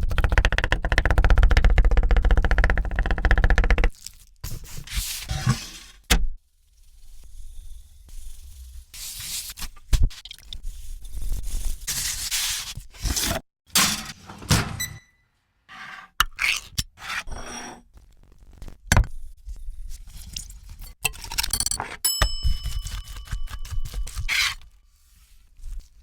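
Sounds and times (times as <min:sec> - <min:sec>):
kitchen scrapes and knocks: 0:11.9 - 0:16.2, 0:17.0 - 0:17.8
metallic ring: 0:22.0 - 0:24.1.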